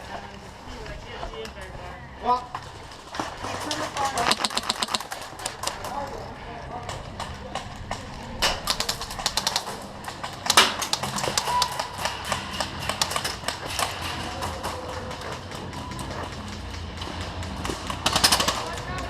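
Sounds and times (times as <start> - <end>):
airsoft guns firing: 3.2 - 6.1, 7.1 - 19.0.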